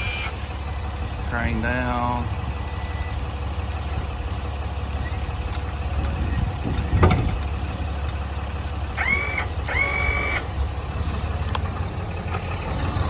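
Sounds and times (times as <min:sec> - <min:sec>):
short high-pitched squeals: 0:00.0 - 0:01.4, 0:02.0 - 0:04.1, 0:09.0 - 0:10.5
diesel engine idling: 0:00.0 - 0:13.0
crane click: 0:02.2 - 0:08.2, 0:09.0 - 0:10.7.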